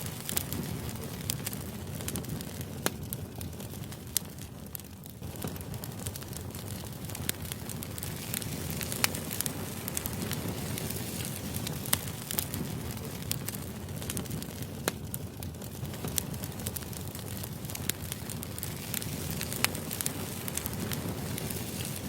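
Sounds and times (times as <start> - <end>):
sharp clicks and crackles: 0.0 - 22.0
steady hiss: 15.7 - 22.0.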